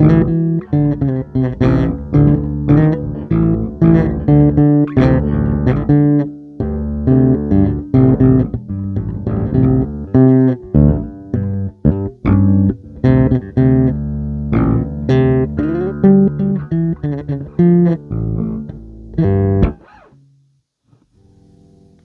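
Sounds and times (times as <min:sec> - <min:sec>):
plucked guitar notes: 0:00.0 - 0:20.3.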